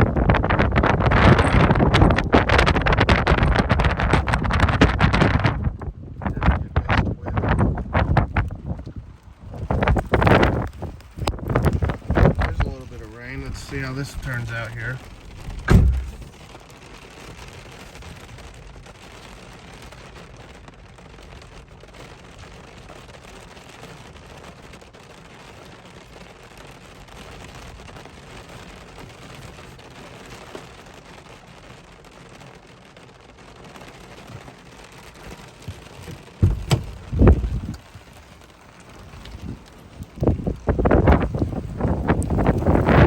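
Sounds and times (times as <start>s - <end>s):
rain: 0.0s - 43.0s
wind: 0.0s - 43.0s
deep thump on microphone: 15.2s - 16.4s, 35.7s - 37.8s.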